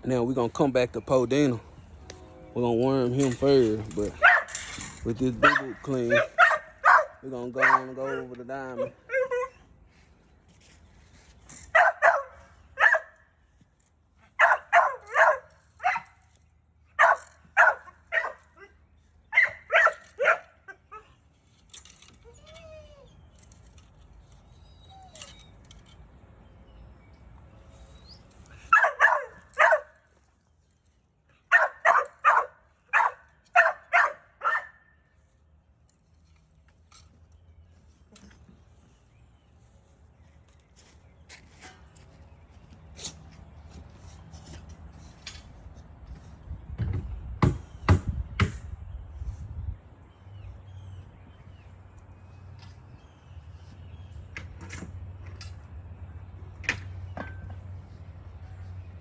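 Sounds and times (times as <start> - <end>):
dog barking: 4.2 - 4.5, 5.4 - 8.3, 11.7 - 13.1, 14.4 - 16.1, 17.0 - 18.7, 19.3 - 20.5, 28.7 - 29.9, 31.5 - 34.8.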